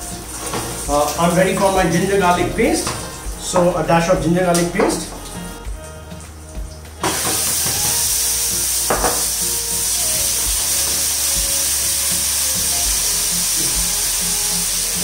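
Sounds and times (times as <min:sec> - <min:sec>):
paste sizzling in hot oil: 0:06.5 - 0:15.0.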